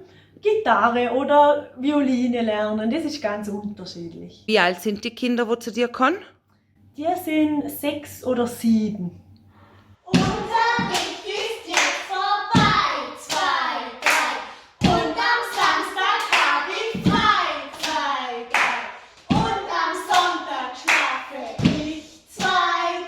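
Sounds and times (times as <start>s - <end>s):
children singing together: 10.1s - 23.0s
hand claps: 10.9s - 19.5s, 20.1s - 21.2s.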